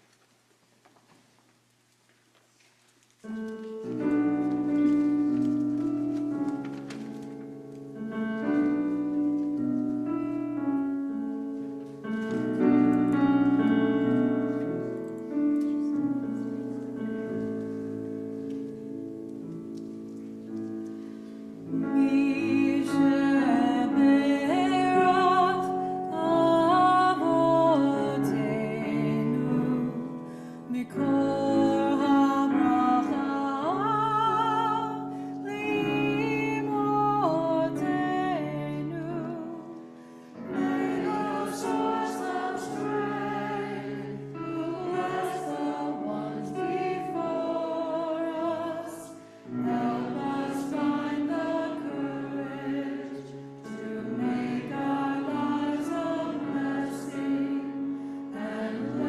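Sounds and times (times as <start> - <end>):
choir singing: 21.7 - 39.7, 40.4 - 59.0.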